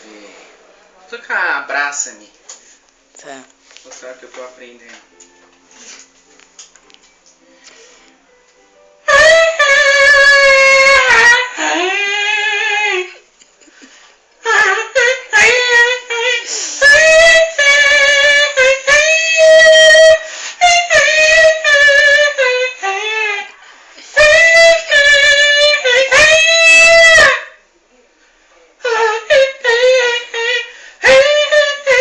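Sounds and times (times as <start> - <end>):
person imitating a saxophone: 9.1 - 13.2, 14.4 - 23.5, 24.2 - 27.5, 28.8 - 32.0.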